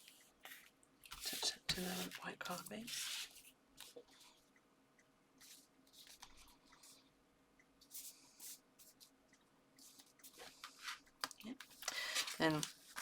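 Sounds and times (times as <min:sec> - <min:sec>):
paper rustling and scuffing: 0:00.5 - 0:04.0, 0:11.8 - 0:13.0.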